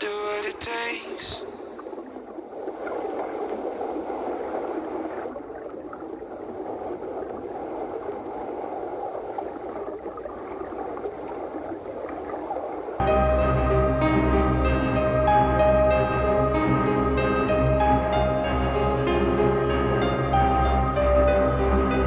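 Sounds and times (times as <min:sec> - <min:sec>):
water rushing: 0:00.0 - 0:22.0
background music: 0:13.0 - 0:22.0.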